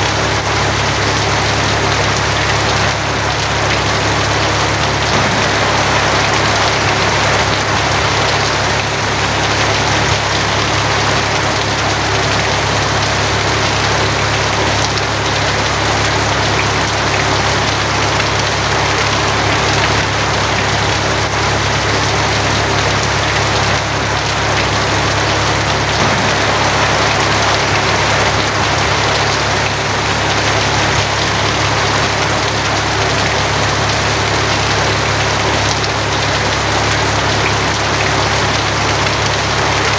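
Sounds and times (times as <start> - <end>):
heavy rain on a tin roof: 0.0 - 39.9
low rumble: 5.1 - 9.8, 25.2 - 31.6.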